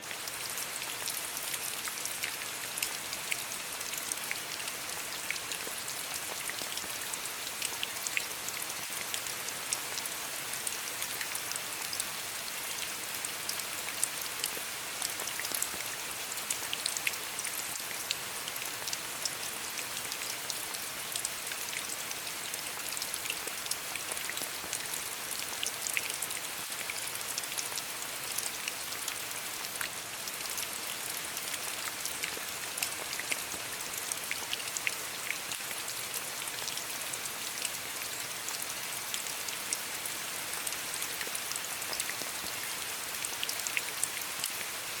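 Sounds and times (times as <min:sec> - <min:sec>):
rain falling on stones: 0:00.0 - 0:45.0.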